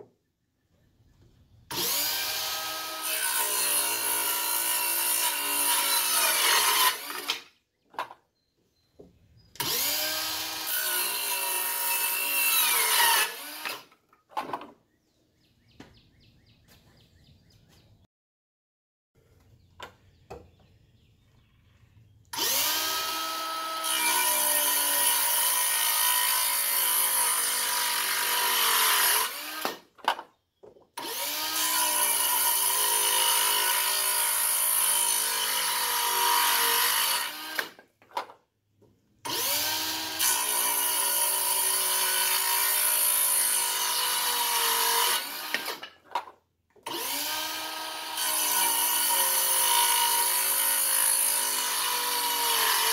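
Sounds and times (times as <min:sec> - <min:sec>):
circular saw cutting wood: 0:01.7 - 0:07.5, 0:09.6 - 0:14.0, 0:22.3 - 0:29.9, 0:31.0 - 0:37.8, 0:39.2 - 0:46.0, 0:46.8 - 0:52.9.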